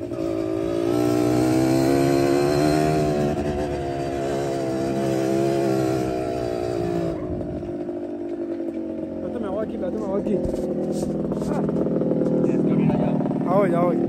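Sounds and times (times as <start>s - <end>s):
two-stroke motorcycle engine running: 0.0s - 14.0s
wind rushing over microphone: 6.7s - 7.8s.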